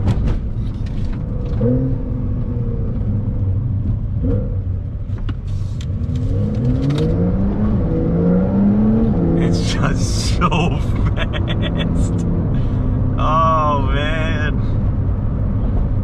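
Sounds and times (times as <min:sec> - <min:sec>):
car engine accelerating: 0:00.8 - 0:16.0
steady low rumble: 0:09.5 - 0:16.0.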